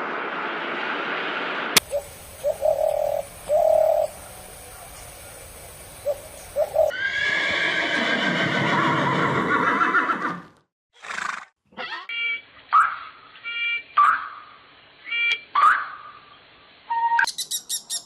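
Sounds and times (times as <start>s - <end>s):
horse neighing: 6.9s - 11.5s.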